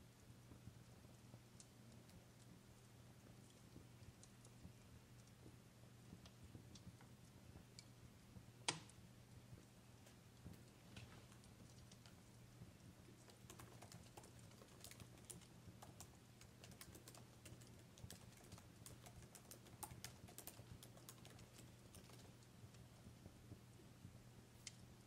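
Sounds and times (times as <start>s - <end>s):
low steady hum: 0.0s - 25.0s
fire crackling and popping: 0.2s - 25.0s.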